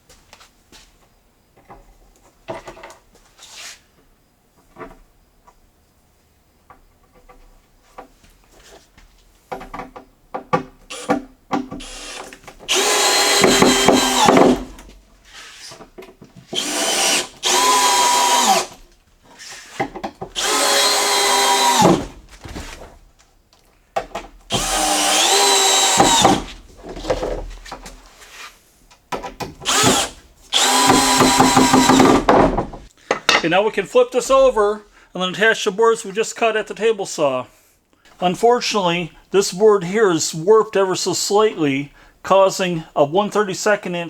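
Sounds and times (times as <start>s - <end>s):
power drill drilling into wood: 10.9s - 11.2s, 11.8s - 14.8s, 16.6s - 18.8s, 20.4s - 22.2s, 24.5s - 26.6s, 29.6s - 32.4s
handling knocks: 30.9s - 33.6s.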